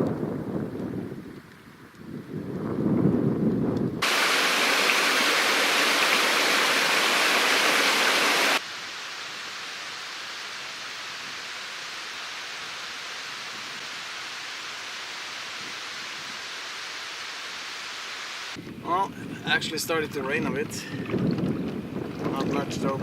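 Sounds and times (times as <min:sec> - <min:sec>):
steady rushing hiss: 0:04.0 - 0:20.4.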